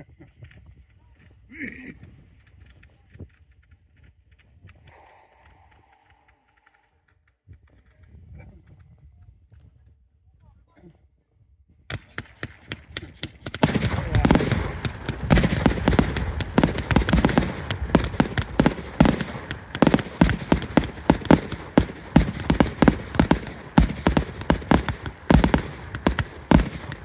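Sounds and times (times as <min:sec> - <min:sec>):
firework bangs: 0:11.9 - 0:27.0
firework crackling: 0:12.4 - 0:27.0.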